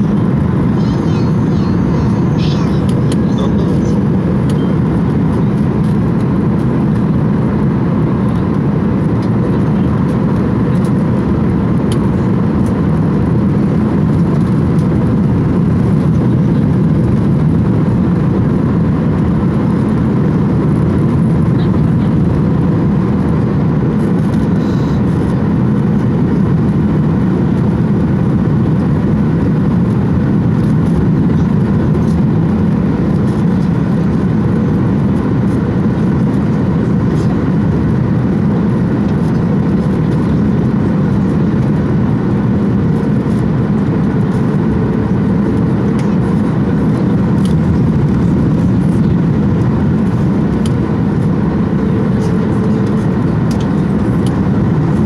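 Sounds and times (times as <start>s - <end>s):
jet airliner cabin rumble: 0.0s - 55.0s.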